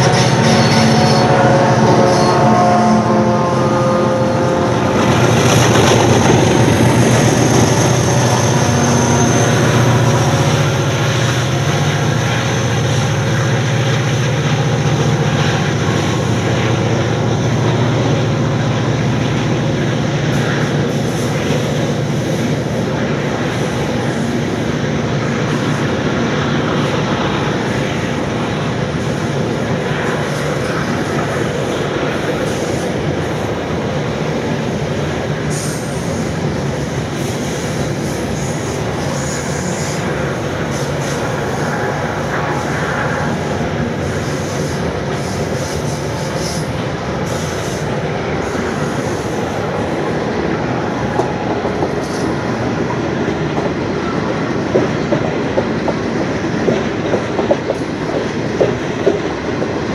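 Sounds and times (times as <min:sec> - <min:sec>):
diesel locomotive engine drone: 0:00.0 - 0:59.9
wheel-on-rail rumble: 0:00.0 - 0:59.9
train wheel clicks: 0:28.8 - 0:59.9.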